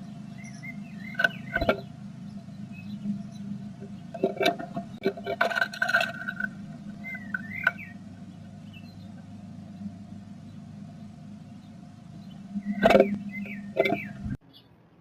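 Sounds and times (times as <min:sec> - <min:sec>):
bird chirping call: 0:00.0 - 0:05.0, 0:05.8 - 0:14.8
low electrical hum: 0:00.0 - 0:15.0
bird scratching in nest box: 0:04.1 - 0:08.0.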